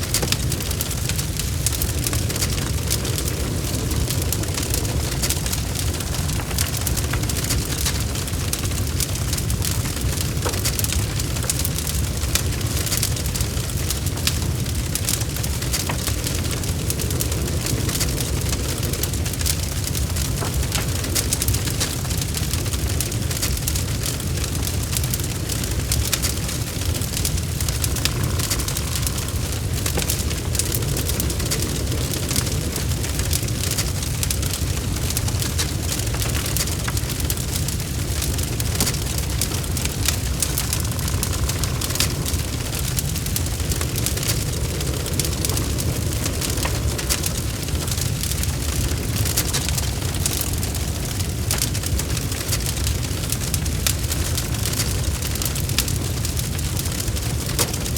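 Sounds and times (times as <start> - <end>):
crackles and pops of burning logs: 0.0 - 57.9
fire rumbling: 0.0 - 57.9.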